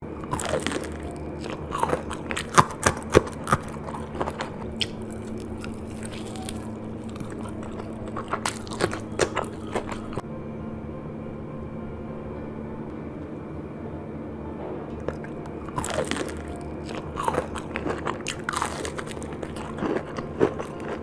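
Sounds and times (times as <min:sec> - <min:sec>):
person chewing crunchy food: 0:00.0 - 0:10.2, 0:15.0 - 0:21.0
steady low hum: 0:00.0 - 0:21.0.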